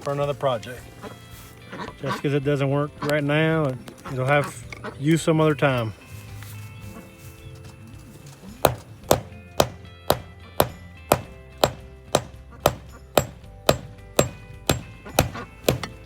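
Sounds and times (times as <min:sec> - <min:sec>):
hammer striking bolt: 0:08.6 - 0:16.0.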